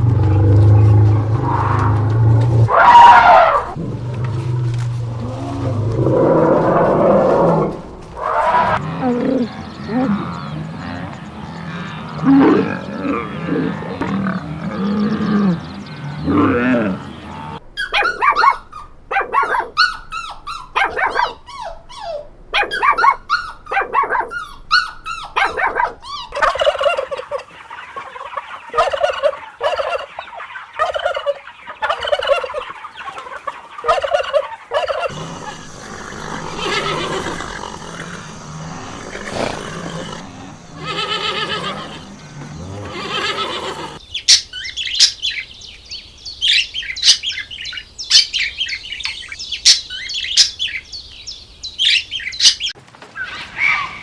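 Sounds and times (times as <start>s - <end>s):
low animal calls: 0.0s - 18.9s, 22.8s - 45.4s
shrill sweeping animal cries: 2.7s - 3.8s, 33.9s - 45.2s, 51.8s - 54.0s
short repeated animal calls: 33.9s - 44.0s.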